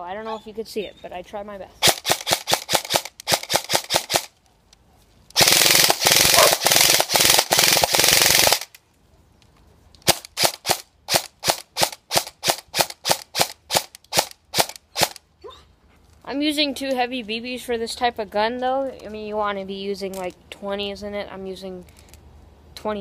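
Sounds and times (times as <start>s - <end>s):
electric airsoft gun firing: 1.8s - 4.3s, 5.4s - 8.8s, 10.0s - 15.2s.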